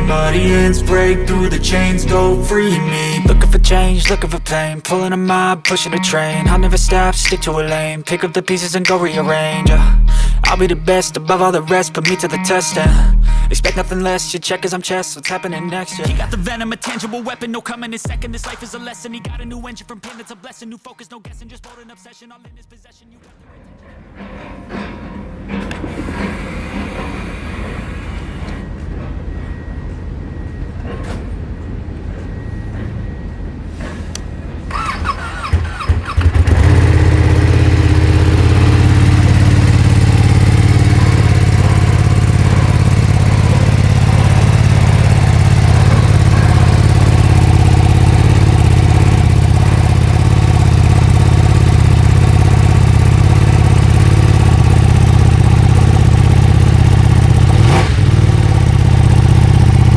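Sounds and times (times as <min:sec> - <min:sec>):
motorcycle starter whir: 0:00.0 - 0:19.9, 0:23.2 - 0:59.9
motorcycle engine idling: 0:03.3 - 0:04.6, 0:06.5 - 0:07.8, 0:09.7 - 0:11.1, 0:12.9 - 0:14.3, 0:34.7 - 0:59.9.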